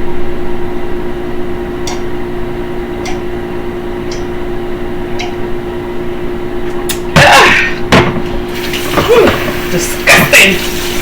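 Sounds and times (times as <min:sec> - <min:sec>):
steady hum: 0:00.0 - 0:11.0
light ticking: 0:01.8 - 0:02.2, 0:03.0 - 0:04.5, 0:05.1 - 0:05.6.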